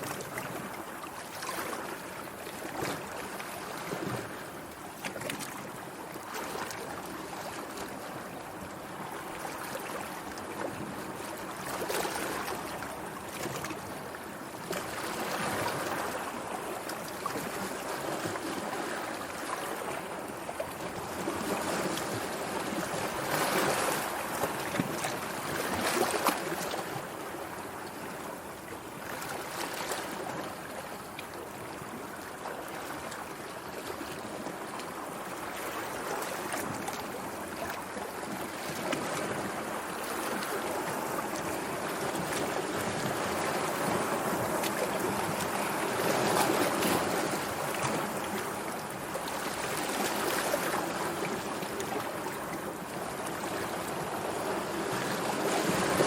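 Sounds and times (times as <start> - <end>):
sea water lapping: 0.0 - 56.0.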